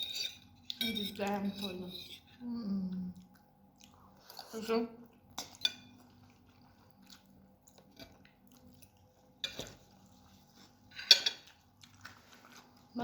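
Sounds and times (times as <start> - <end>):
chewing noodles: 2.9 - 13.0.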